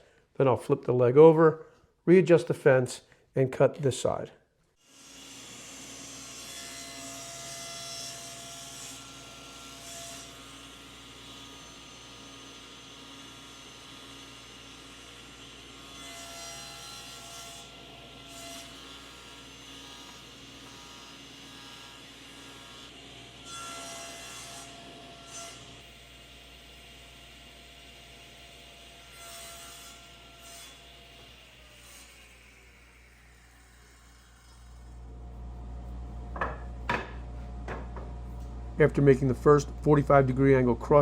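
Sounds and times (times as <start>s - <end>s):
saw cutting wood: 4.8s - 37.2s
table saw motor hum: 4.9s - 40.7s.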